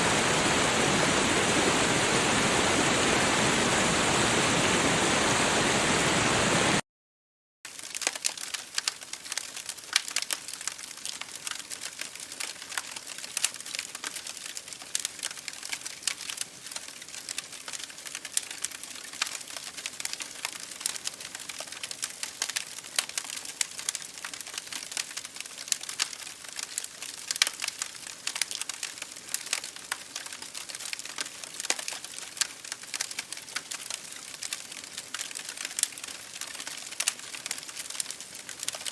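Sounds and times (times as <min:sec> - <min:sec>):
creek water rushing: 0:00.0 - 0:06.8
campfire crackling: 0:07.7 - 0:38.9.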